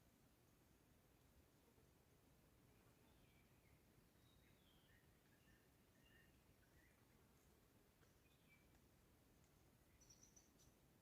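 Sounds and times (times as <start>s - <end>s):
background hiss: 0.0s - 11.0s
faint bird chirps: 2.6s - 8.8s, 9.5s - 11.0s.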